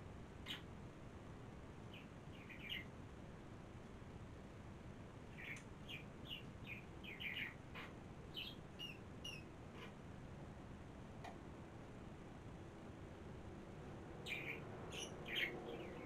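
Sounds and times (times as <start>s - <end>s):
small bird chirping: 0.4s - 0.8s, 1.8s - 3.0s, 5.3s - 10.0s, 14.2s - 16.0s.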